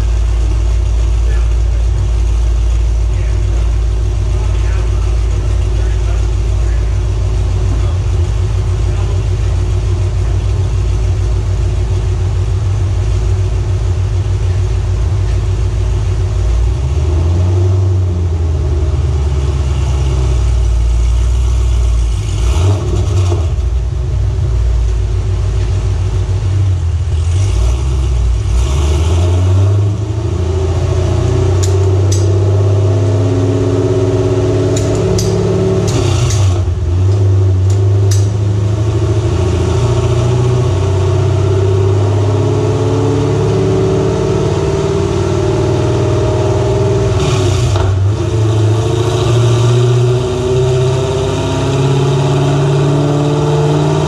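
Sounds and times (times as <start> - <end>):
car engine on a dyno: 0.0 - 54.0
sharp clicks: 34.7 - 36.5.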